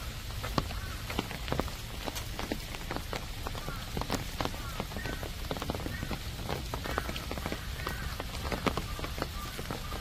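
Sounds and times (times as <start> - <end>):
raindrops ticking: 0.0 - 10.0
steady low rumble of rain: 0.0 - 10.0.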